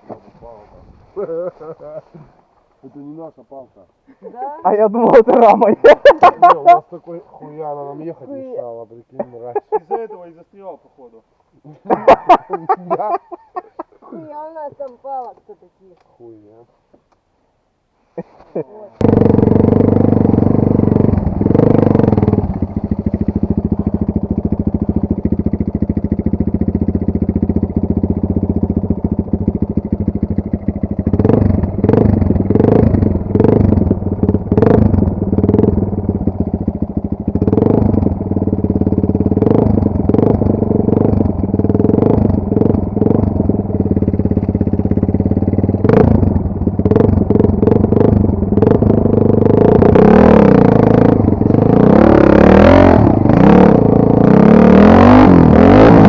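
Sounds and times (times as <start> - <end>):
engine revving: 19.0 - 56.0
motorcycle engine idling: 19.0 - 56.0.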